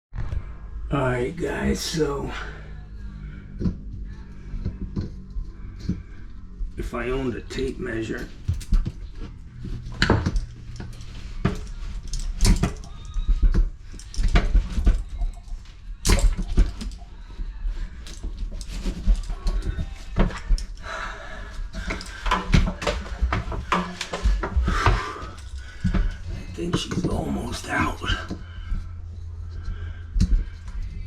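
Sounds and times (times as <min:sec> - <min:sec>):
knocks and clatter of plumbing work: 0:06.8 - 0:17.1, 0:17.7 - 0:28.9.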